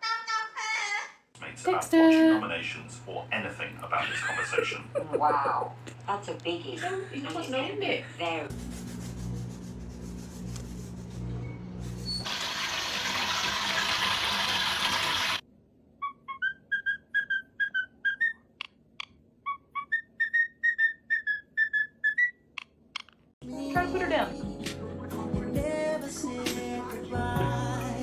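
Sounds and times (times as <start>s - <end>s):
parrot whistling a tune: 16.0s - 18.5s, 19.4s - 22.4s.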